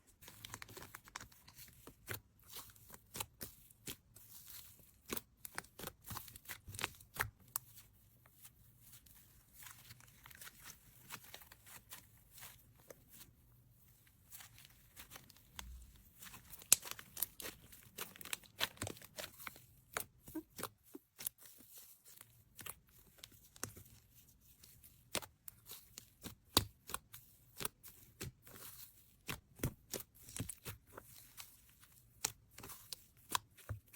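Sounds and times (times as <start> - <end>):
plastic and tape crinkling: 0.1 - 2.9, 14.2 - 26.7.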